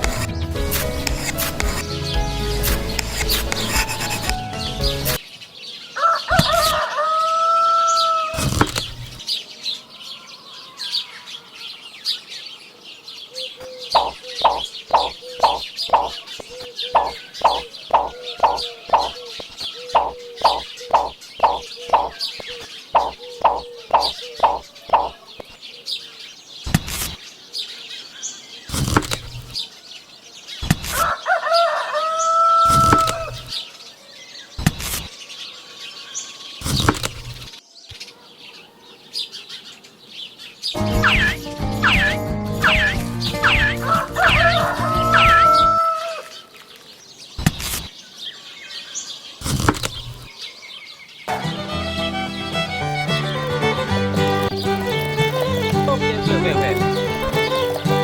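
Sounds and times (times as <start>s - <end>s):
fowl-like bird calls: 6.0s - 9.2s, 13.6s - 25.2s, 30.9s - 33.6s, 41.0s - 46.5s
faint chirping: 12.2s - 29.6s
sharp knocks: 14.0s - 16.2s, 17.0s - 19.2s, 20.0s - 22.2s, 23.0s - 25.2s.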